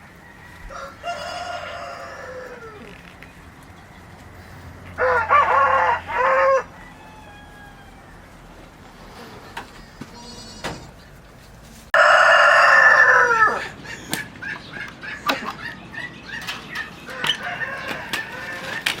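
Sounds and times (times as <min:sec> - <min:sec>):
rooster crowing: 0:00.0 - 0:03.0, 0:04.9 - 0:08.7, 0:12.0 - 0:13.8, 0:17.0 - 0:19.0
chickens clucking: 0:00.0 - 0:19.0.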